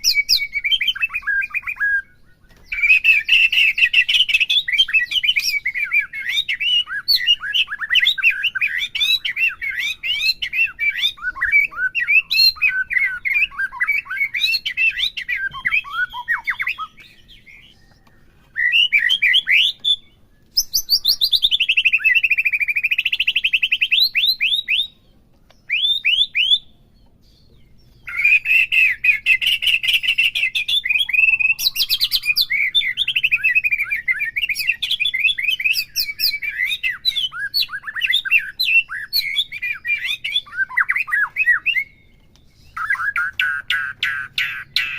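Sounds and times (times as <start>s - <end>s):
bird singing chirps and whistles: 0.0s - 44.9s.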